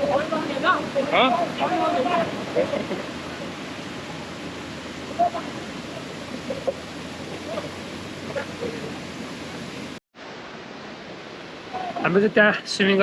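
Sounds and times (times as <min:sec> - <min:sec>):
waterfall rushing: 0:00.0 - 0:13.0
faint voices: 0:05.0 - 0:09.1.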